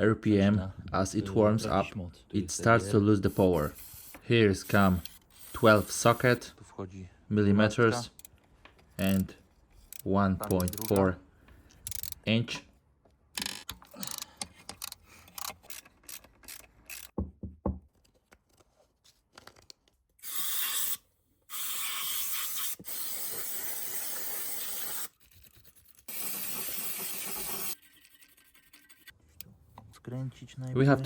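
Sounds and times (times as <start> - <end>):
socket ratchet clicking: 4.7 - 6.0, 9.9 - 11.0, 11.7 - 12.2, 13.4 - 17.2.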